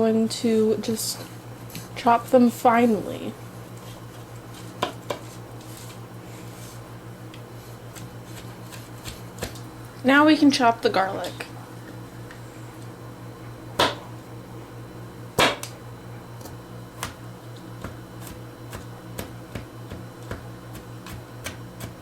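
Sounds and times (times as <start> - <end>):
knife chopping on cutting board: 7.9 - 9.6, 15.4 - 15.7, 16.4 - 17.2, 17.8 - 22.0.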